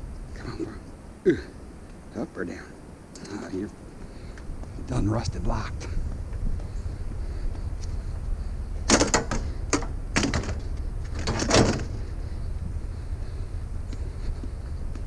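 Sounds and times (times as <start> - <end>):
metal clanks and knocks: 8.9 - 12.0.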